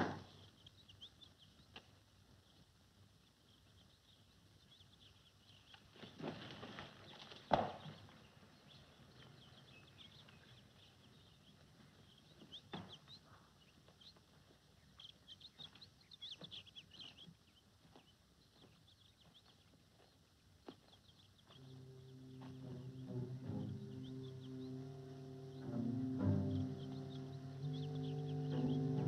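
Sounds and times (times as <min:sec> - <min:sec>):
bird chirps: 0:00.2 - 0:06.3, 0:07.0 - 0:29.0
low bowed strings: 0:21.6 - 0:29.0
footsteps on stony ground: 0:22.4 - 0:22.8.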